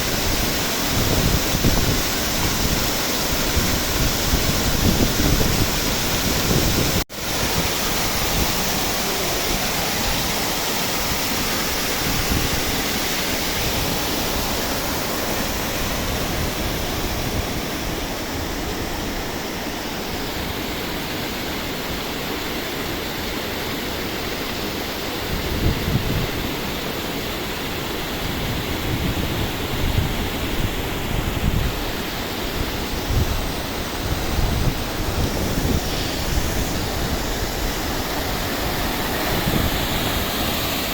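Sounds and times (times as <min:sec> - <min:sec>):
wind buffeting microphone: 0:00.0 - 0:08.6, 0:25.2 - 0:26.6, 0:28.1 - 0:40.9
river water rushing: 0:00.0 - 0:40.9.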